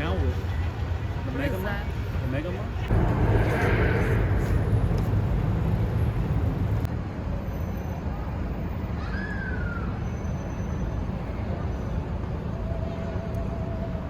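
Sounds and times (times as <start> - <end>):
road traffic rumble: 0.0 - 8.7.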